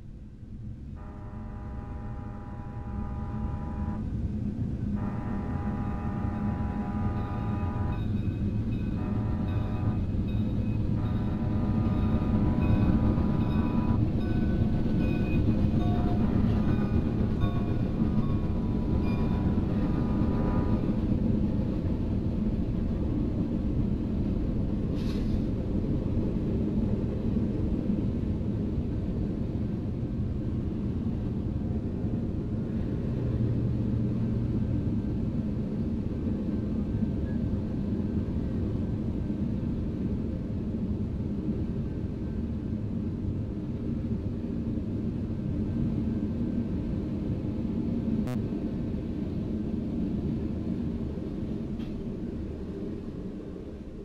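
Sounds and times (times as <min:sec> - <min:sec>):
train rumbling past: 0:00.0 - 0:54.0
held multi-note tone: 0:01.0 - 0:04.1, 0:05.0 - 0:14.6.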